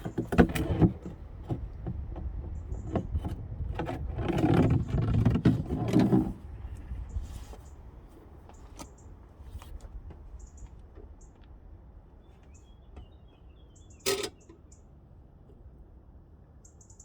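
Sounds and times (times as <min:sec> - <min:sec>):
small birds chirping: 0:10.2 - 0:11.4, 0:12.2 - 0:15.0, 0:16.6 - 0:17.0.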